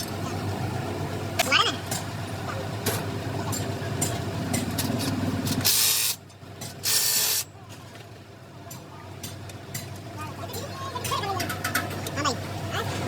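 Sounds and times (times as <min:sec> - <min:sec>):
air hissing bursts: 0:05.6 - 0:06.2, 0:06.8 - 0:07.5.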